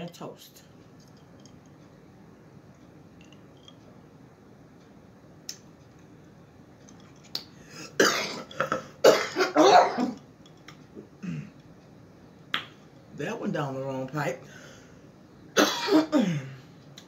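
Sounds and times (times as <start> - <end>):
woman coughing hard: 8.0 - 10.2, 15.6 - 16.5.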